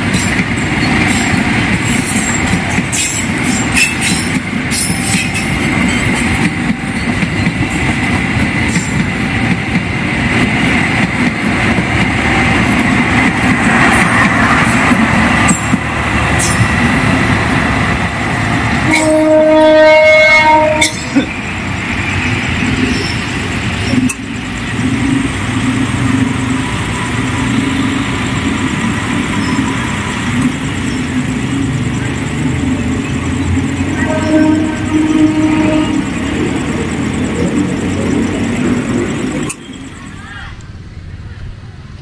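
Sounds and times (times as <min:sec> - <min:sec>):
train carriage clattering on rails: 0:00.0 - 0:40.3
train rumble: 0:00.0 - 0:42.0
train horn: 0:18.8 - 0:21.3, 0:33.8 - 0:36.5.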